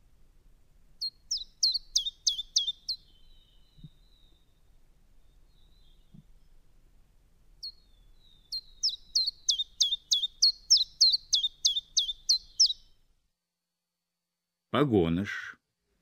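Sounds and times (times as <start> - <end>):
bird singing short high notes: 1.0 - 4.4, 7.6 - 12.8.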